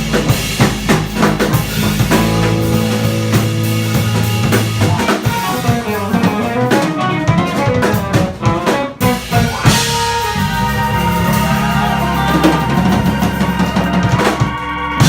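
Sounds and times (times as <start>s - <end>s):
live funk band playing: 0.0s - 15.0s.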